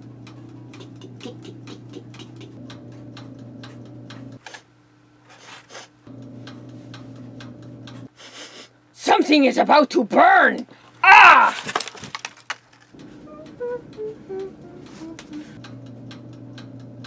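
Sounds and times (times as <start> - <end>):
rapid uneven ticking: 0.0 - 4.4
small machine humming: 0.0 - 4.5, 6.1 - 8.1, 13.0 - 17.0.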